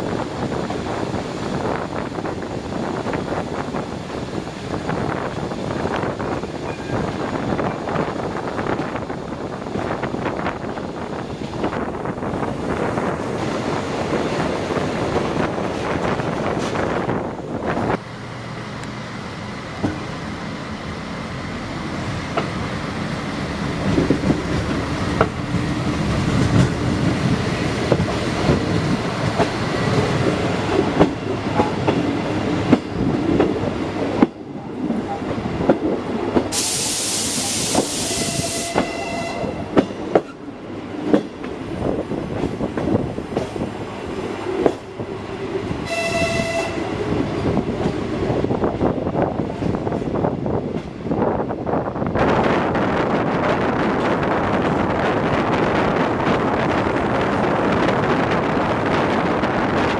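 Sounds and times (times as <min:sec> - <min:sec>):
railcar engine and wheels rumbling: 0:00.0 - 0:59.9
loud hiss: 0:36.5 - 0:38.8.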